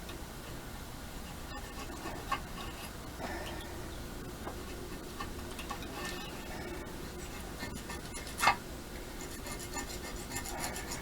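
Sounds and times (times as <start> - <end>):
hand tool scraping metal: 5.2 - 6.5, 7.2 - 8.6, 9.2 - 11.0.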